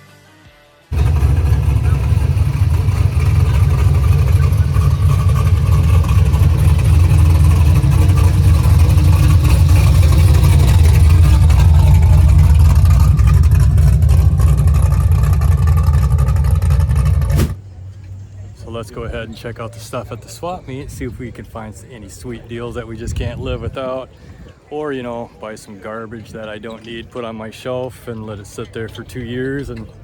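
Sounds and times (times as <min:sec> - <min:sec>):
car engine rumbling: 0:00.9 - 0:23.8.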